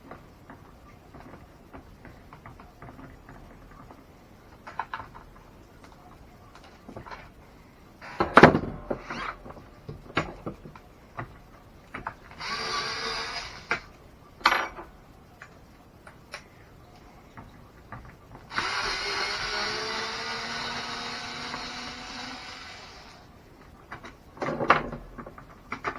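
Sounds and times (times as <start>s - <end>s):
steady buzzing: 18.5s - 23.3s
clicks and knocks of parts: 23.6s - 25.9s.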